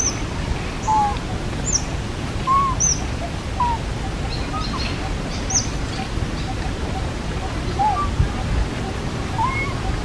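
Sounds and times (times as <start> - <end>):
soft low arching bird notes: 0.0 - 10.0
bird high falling chirp: 9.4 - 9.8.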